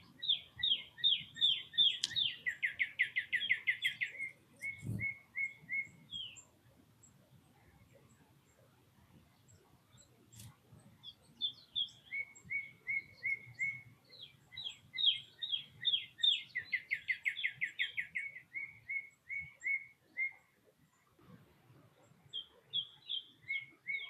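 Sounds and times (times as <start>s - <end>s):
songbird whistling song: 0.0s - 6.6s, 9.9s - 20.7s, 22.0s - 24.0s
sharp click: 2.0s - 2.2s.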